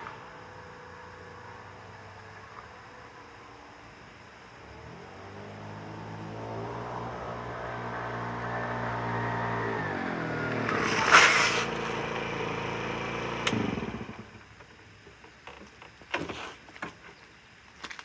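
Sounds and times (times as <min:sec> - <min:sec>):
scooter engine running: 0:04.6 - 0:14.5.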